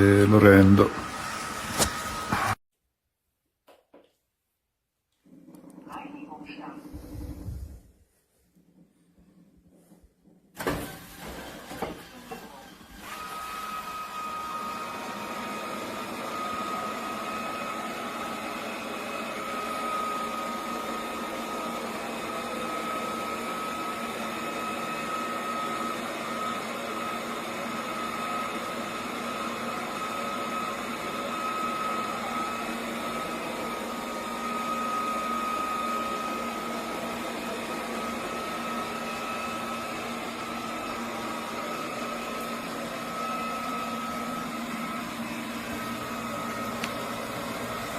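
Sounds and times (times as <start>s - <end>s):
robot vacuum whirring: 0.2s - 2.6s.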